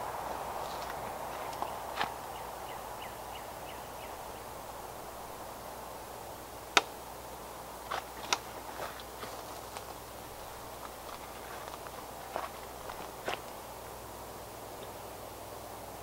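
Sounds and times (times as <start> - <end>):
background hiss: 0.0 - 16.0
bird chirping: 0.7 - 5.2.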